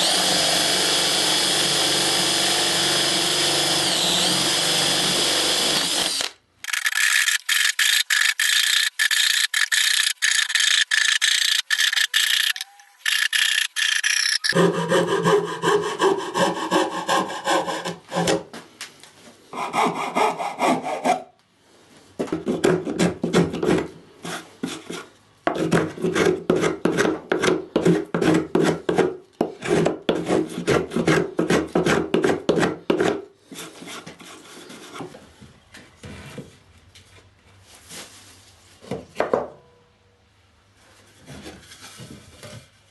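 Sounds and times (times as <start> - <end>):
power tool running: 0.0 - 14.6
hand tool scraping wood: 7.0 - 18.6, 19.6 - 21.3, 22.2 - 35.2.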